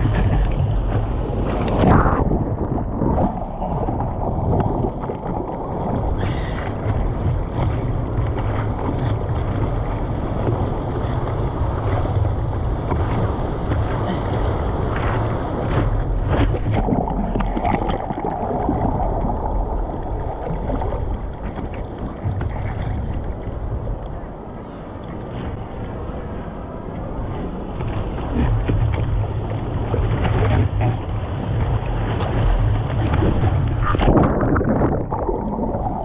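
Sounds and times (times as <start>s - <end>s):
moving seawater: 0.0s - 36.0s
wind on microphone: 0.0s - 36.0s
knocks or splashes: 32.9s - 36.0s.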